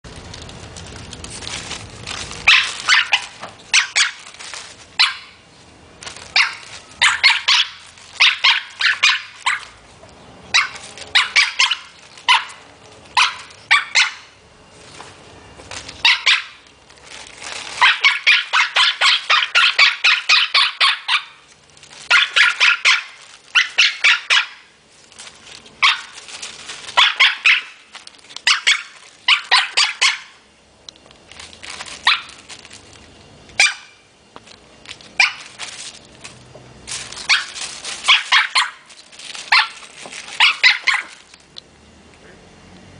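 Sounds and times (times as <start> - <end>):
parrot imitating dog barks: 6.3 - 9.7, 10.5 - 12.6, 13.2 - 14.3, 16.0 - 16.6, 17.8 - 21.4, 22.1 - 24.7, 27.0 - 27.8, 28.4 - 30.4, 33.6 - 34.0, 38.1 - 38.8, 40.4 - 41.2.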